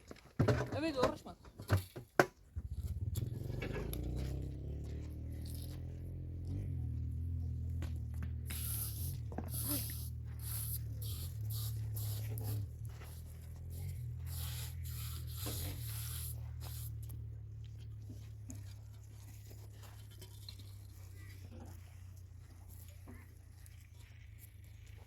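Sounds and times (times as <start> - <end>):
steady low hum: 2.6 - 24.9
short scratchy strokes: 7.9 - 25.0.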